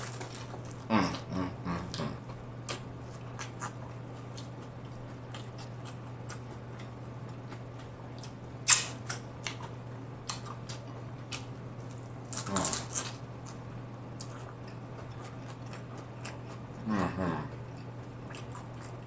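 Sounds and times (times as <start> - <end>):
crunchy chewing: 0.0 - 19.0
steady low hum: 0.0 - 19.0.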